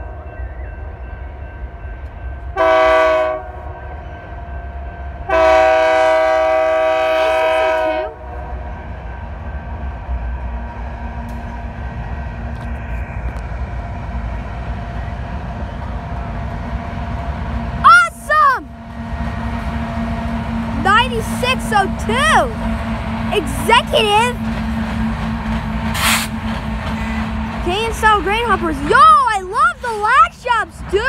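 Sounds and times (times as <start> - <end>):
passing train rumble: 0.0 - 31.0
locomotive air horn: 2.6 - 3.6, 5.3 - 8.2.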